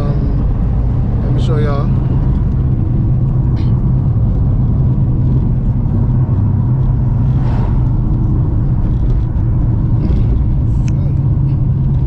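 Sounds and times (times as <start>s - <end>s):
car cabin road hum: 0.0s - 12.0s.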